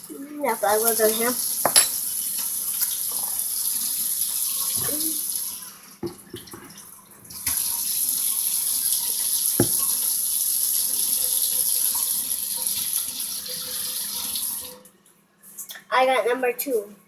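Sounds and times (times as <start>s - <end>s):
water running from a tap: 0.0s - 14.9s
light knocks: 9.6s - 9.8s.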